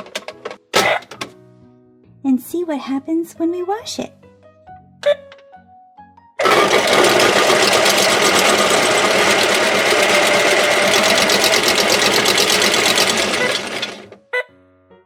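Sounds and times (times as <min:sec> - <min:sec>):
toy washing machine whirring rattle: 0:06.4 - 0:14.2.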